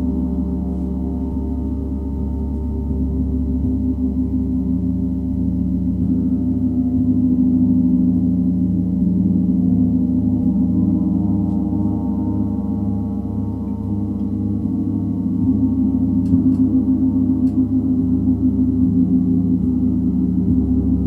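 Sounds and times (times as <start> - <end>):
gong throbbing low tones: 0.0 - 21.0.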